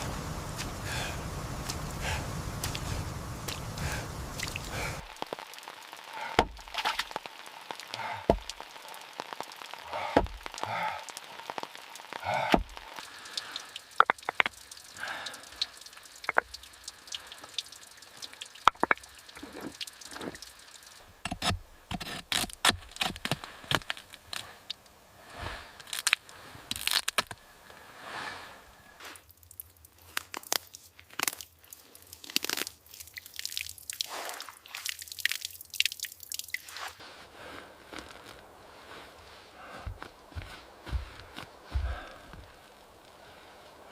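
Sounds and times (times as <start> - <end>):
light clicks and cracks: 6.5 - 24.9, 25.8 - 27.8, 29.2 - 33.2.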